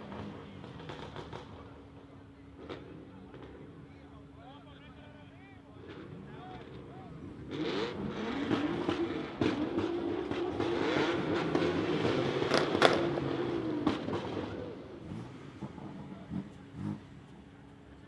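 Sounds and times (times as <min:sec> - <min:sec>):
car engine revving: 0:05.8 - 0:17.4.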